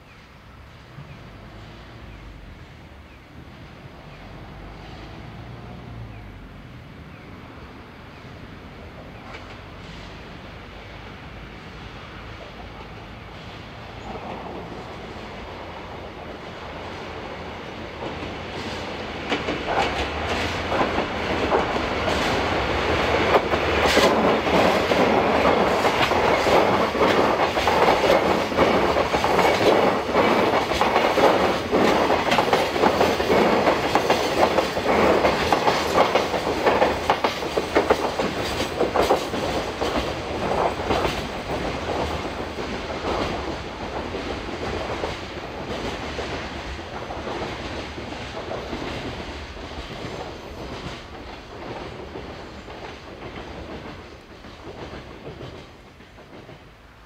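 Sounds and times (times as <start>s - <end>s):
diesel freight train passing: 0.0s - 57.0s
wheels clicking over rail joints: 17.9s - 56.8s.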